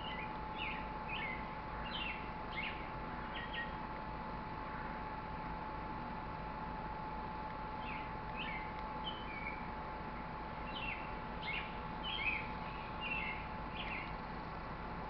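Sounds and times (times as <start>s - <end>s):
small birds chirping: 0.0s - 3.9s, 7.7s - 14.6s
faint steady hum: 0.0s - 15.0s.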